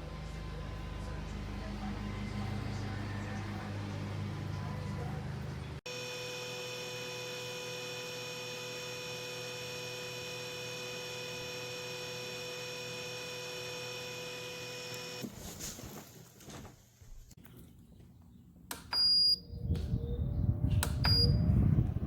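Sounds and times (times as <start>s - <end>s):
electrical hum: 0.0s - 15.3s.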